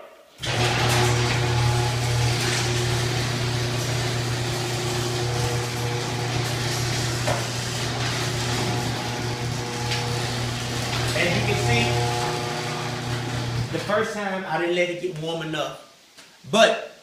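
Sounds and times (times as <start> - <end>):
garage door opener motor humming: 0.4 - 13.9.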